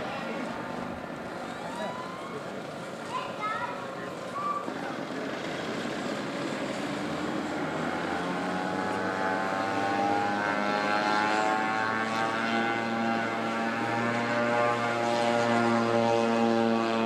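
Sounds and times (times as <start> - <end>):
model airplane engine droning: 4.6 - 17.0.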